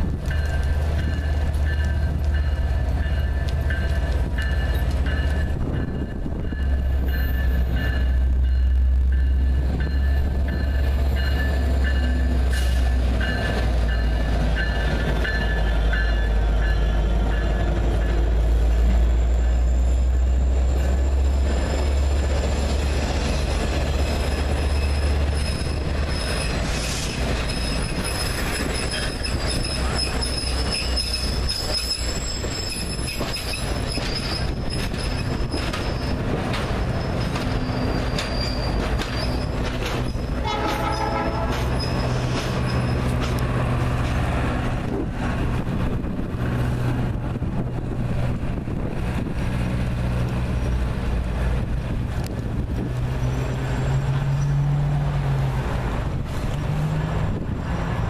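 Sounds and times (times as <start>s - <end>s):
diesel locomotive rumbling: 0.0s - 58.0s
wheels squealing on rails: 0.0s - 58.0s
locomotive bell ringing: 0.2s - 26.7s, 27.4s - 43.3s.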